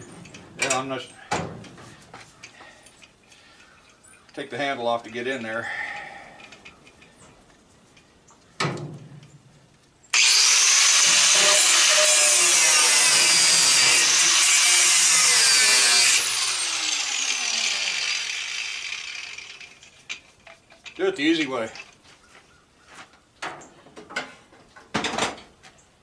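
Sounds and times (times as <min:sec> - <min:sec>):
angle grinder cutting metal: 0:10.1 - 0:20.1.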